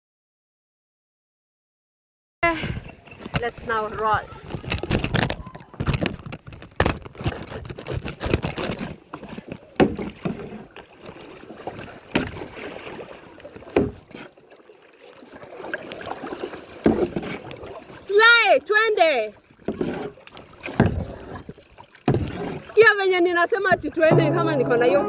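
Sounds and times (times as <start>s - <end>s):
paddle splashing in water: 2.6s - 25.0s
paddle knocks: 2.7s - 14.3s, 15.9s - 18.0s, 19.5s - 22.8s, 24.0s - 25.0s.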